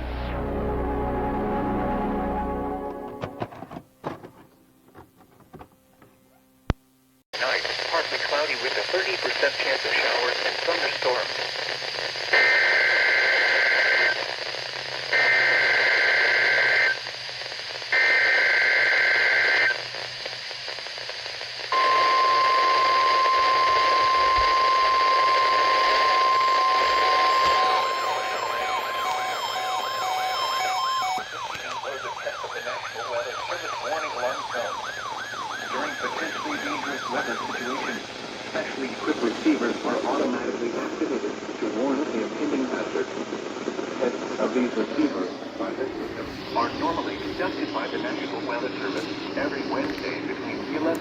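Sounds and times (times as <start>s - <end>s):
radio static: 7.4s - 51.0s
steady alarm tone: 21.7s - 38.5s
screeching data tones: 21.7s - 39.1s
faint beeps: 21.8s - 34.7s.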